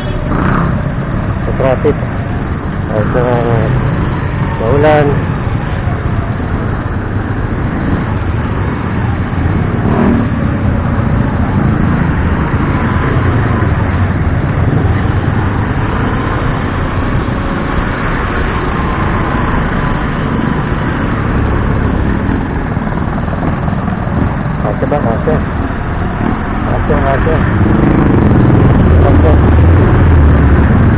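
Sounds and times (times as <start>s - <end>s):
motorcycle engine rumble: 0.0s - 30.9s
wind noise on microphone: 25.5s - 30.9s.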